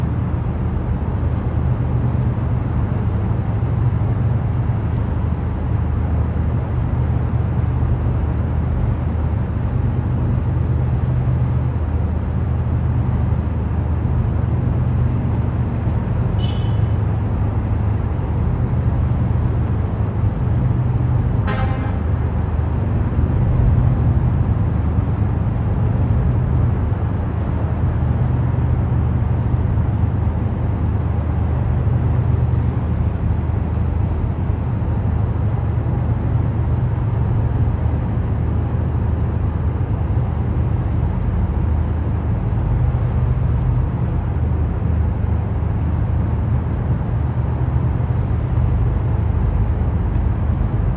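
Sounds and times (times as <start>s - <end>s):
low city traffic rumble: 0.0s - 50.9s.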